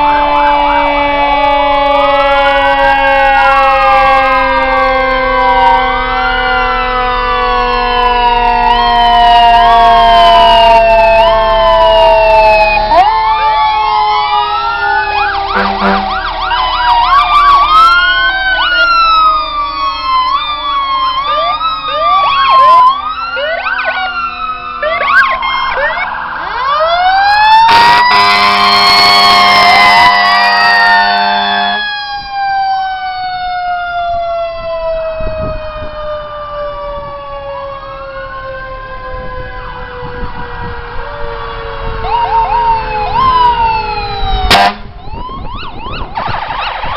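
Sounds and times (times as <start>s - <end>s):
fire truck sirens wailing: 0.0s - 46.9s
horn blast: 15.5s - 16.3s, 27.7s - 31.9s, 44.5s - 44.9s.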